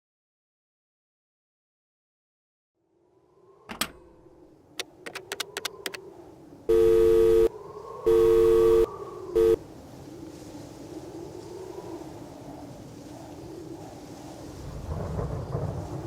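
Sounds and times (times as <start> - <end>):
two-note telephone tone: 6.7 - 7.5, 8.1 - 9.6.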